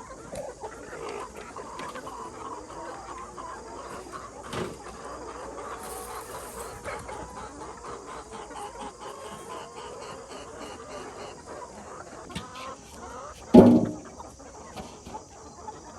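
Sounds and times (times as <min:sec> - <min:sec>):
chickens clucking: 0:00.0 - 0:15.9
sharp knock: 0:13.6 - 0:14.1.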